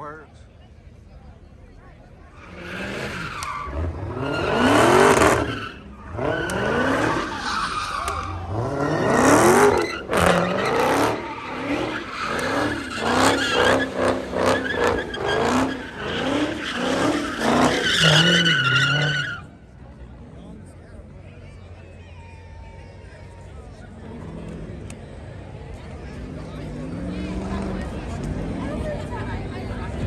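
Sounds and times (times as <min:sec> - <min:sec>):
car engine revving: 0:02.4 - 0:19.4
tyres squealing: 0:02.4 - 0:19.5.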